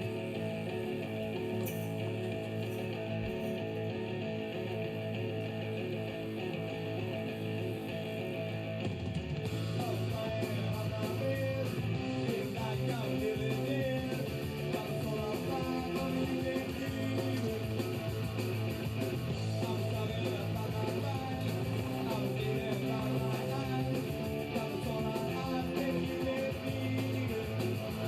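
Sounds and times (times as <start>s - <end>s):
rock music with guitar: 0.0s - 28.0s.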